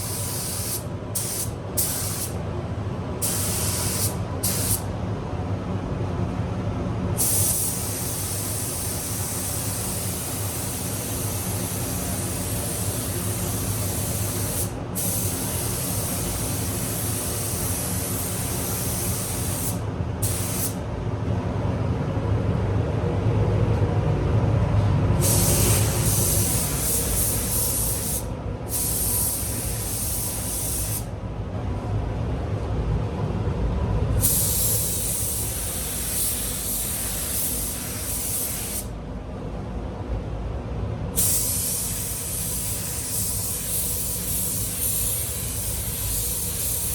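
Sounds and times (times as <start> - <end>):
spray gun hissing: 0.0 - 2.4, 3.2 - 4.8, 7.2 - 20.8, 25.2 - 31.1, 34.2 - 38.9, 41.2 - 46.9
steady low hum: 0.0 - 46.9.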